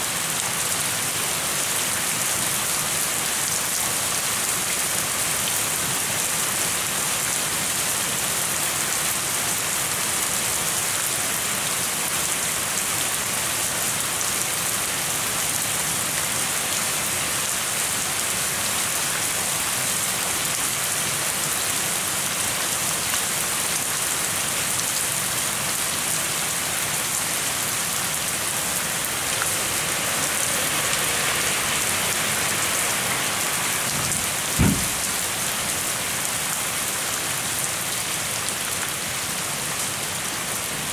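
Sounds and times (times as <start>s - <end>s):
steady rain: 0.0s - 40.9s
low thump: 34.0s - 35.1s.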